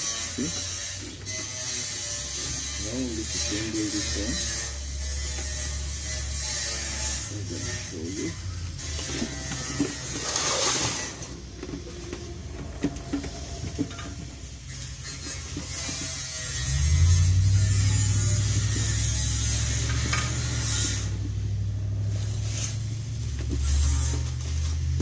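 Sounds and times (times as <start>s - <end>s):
low engine drone: 7.1s - 25.0s.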